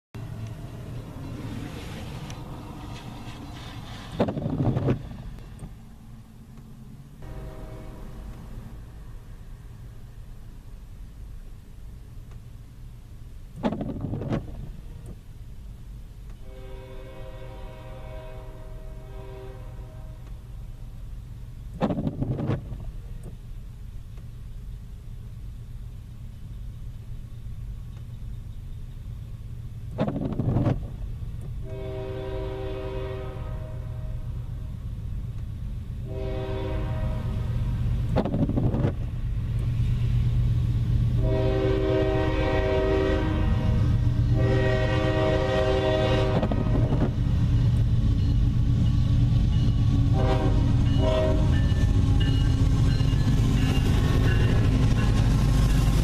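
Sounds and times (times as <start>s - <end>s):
diesel train rumble: 0.1s - 56.0s
train air horn blasts: 7.2s - 8.4s, 16.4s - 20.4s, 31.6s - 34.3s, 36.0s - 37.5s, 41.2s - 47.0s, 50.1s - 52.5s.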